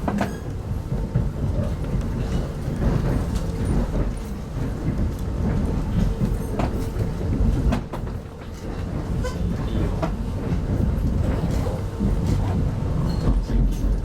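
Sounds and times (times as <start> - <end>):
train wheels rumbling: 0.0 - 14.0.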